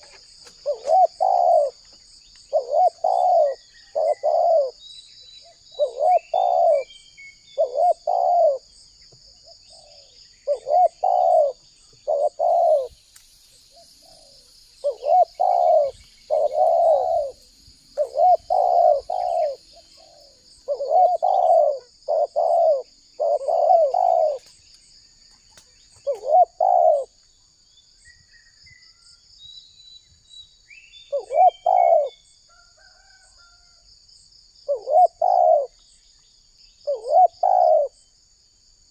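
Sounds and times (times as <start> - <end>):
dove cooing: 0.0 - 1.9, 2.5 - 4.8, 5.4 - 8.8, 9.4 - 13.0, 13.7 - 24.6, 26.0 - 27.2, 31.1 - 32.2, 34.7 - 35.8, 36.8 - 38.0
small birds chirping: 0.0 - 33.2, 34.6 - 38.2
insect drone: 0.0 - 38.9.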